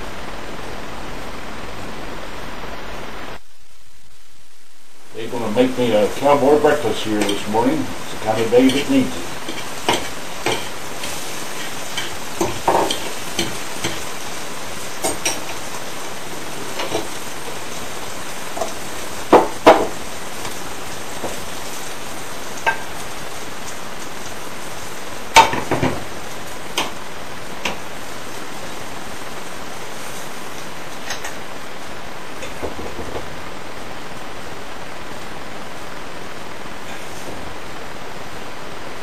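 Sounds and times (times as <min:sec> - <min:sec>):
food sizzling in frying pan: 0:00.0 - 0:39.0
utensil knocking on pan: 0:08.2 - 0:14.1, 0:19.3 - 0:20.0.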